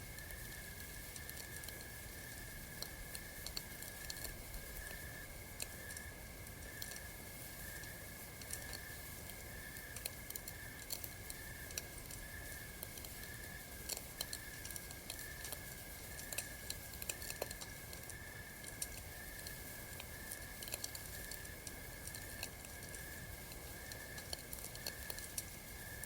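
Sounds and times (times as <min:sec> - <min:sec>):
campfire crackling: 0:00.0 - 0:26.0
night insects trilling: 0:00.0 - 0:26.0.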